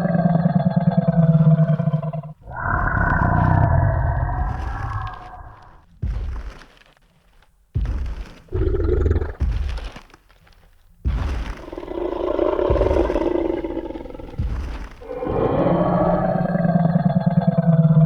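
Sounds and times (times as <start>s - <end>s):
dinosaur roar: 0.0s - 5.8s, 8.5s - 9.4s, 11.6s - 18.0s
heavy footstep thuds: 4.2s - 16.5s.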